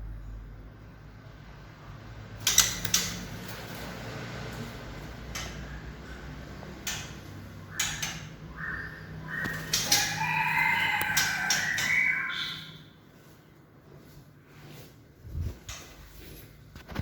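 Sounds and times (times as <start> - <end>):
rooster crowing: 9.7 - 12.4.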